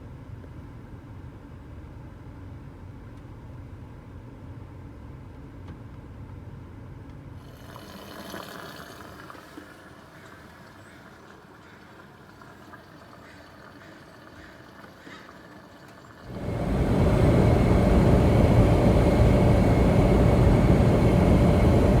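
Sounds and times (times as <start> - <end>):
car rumble from inside cabin: 16.4 - 22.0.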